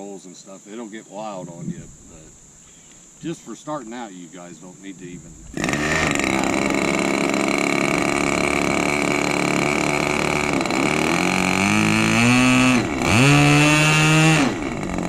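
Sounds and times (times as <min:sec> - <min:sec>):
model airplane motor and propeller: 0:05.4 - 0:15.0.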